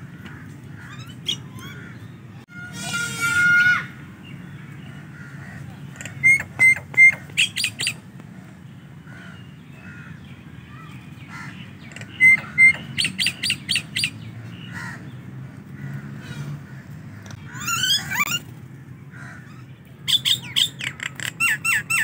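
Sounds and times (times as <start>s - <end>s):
myna calling: 11.3s - 14.1s.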